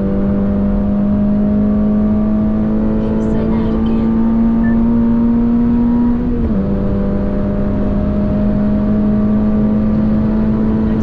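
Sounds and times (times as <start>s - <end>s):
car engine droning under acceleration: 0.0s - 11.0s.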